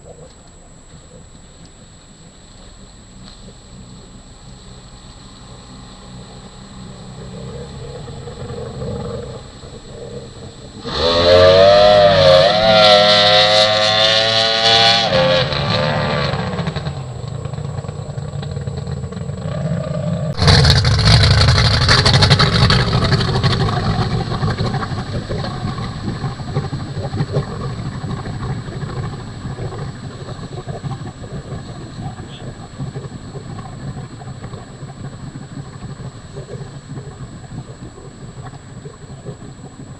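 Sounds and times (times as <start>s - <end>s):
racing outboard motor at high revs: 3.1s - 37.0s.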